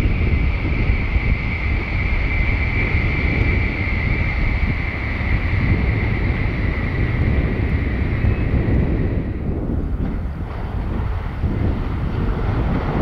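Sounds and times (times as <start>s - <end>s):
train wheels rumbling on rail: 0.0s - 13.0s
wind on microphone: 0.0s - 13.0s.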